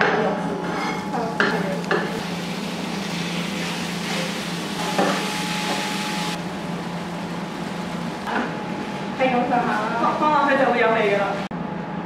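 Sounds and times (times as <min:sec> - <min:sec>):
meat sizzling in a wok: 0:02.0 - 0:10.6.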